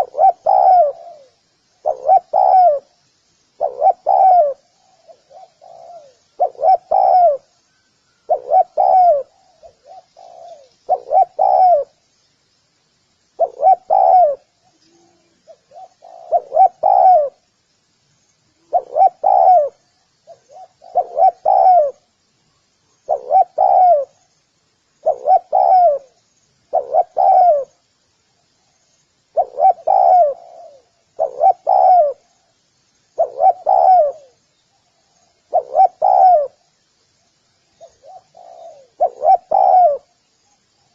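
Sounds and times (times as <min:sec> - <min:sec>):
dove cooing: 0:00.0 - 0:03.0, 0:03.6 - 0:07.6, 0:08.2 - 0:12.0, 0:13.4 - 0:17.4, 0:18.6 - 0:22.1, 0:23.1 - 0:24.2, 0:25.0 - 0:27.8, 0:29.3 - 0:32.4, 0:33.2 - 0:34.4, 0:35.0 - 0:36.6, 0:37.8 - 0:40.2
faint high chirping: 0:00.0 - 0:40.9.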